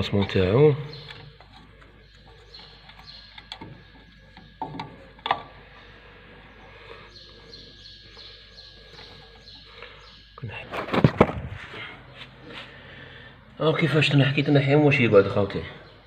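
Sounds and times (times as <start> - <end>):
faint bird chirps: 0.6 - 10.8.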